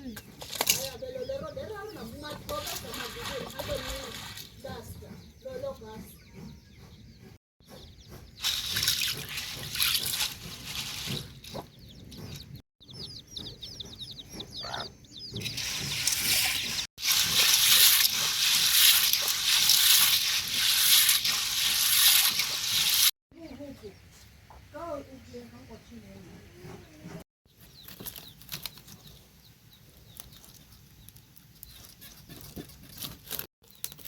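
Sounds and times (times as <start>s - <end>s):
bird chirping rapidly: 11.3s - 16.9s.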